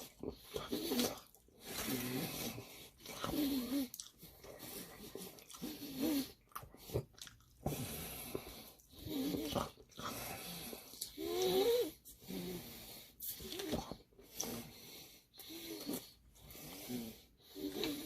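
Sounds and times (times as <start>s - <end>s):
person chewing: 0.0s - 11.6s.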